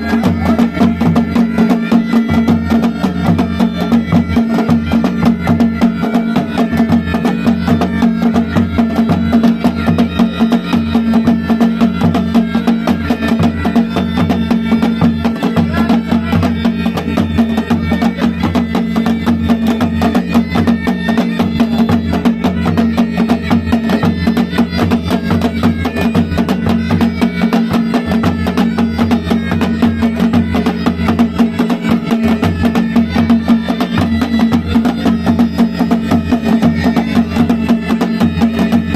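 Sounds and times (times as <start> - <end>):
bagpipe melody with drone: 0.0 - 38.9.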